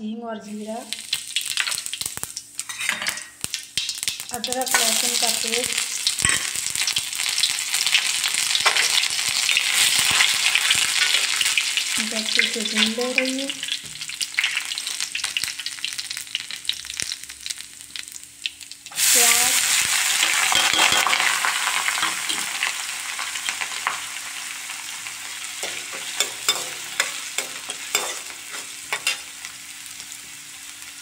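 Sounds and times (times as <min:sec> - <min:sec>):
onion sizzling loudly in oil: 0:00.4 - 0:31.0
paste sizzling in hot oil: 0:00.8 - 0:31.0
steel spoon scraping a pan: 0:20.2 - 0:21.3, 0:25.6 - 0:29.4.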